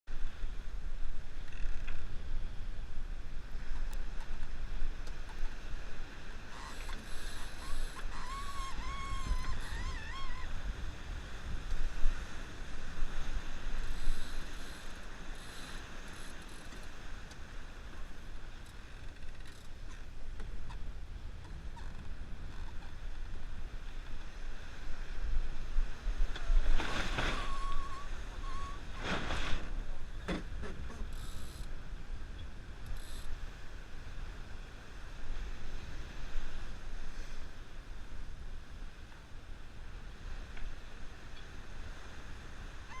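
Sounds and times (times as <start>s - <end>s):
rush of wind and water: 0.1s - 43.0s
creaking and clicking deck gear: 1.4s - 2.1s, 6.6s - 10.4s, 14.0s - 17.4s, 18.6s - 20.8s.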